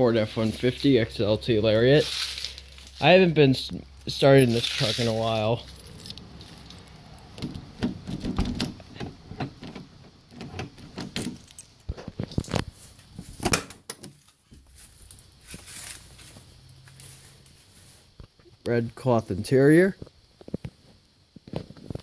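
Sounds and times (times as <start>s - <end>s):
clicks and knocks at truck door: 7.4s - 11.5s.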